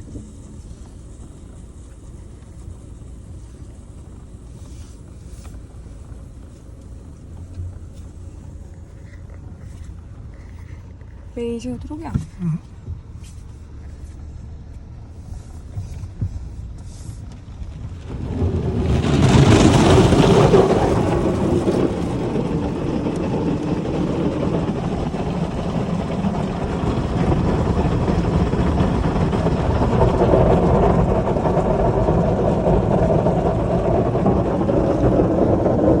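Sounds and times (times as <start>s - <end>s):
low vehicle rumble: 0.0s - 36.0s
waterfall pouring onto car: 17.2s - 36.0s.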